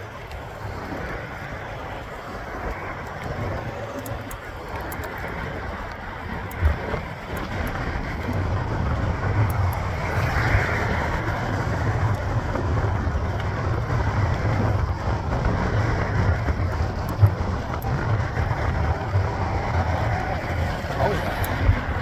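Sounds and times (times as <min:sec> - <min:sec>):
bike road noise: 0:00.0 - 0:22.0
wind buffeting microphone: 0:00.0 - 0:22.0.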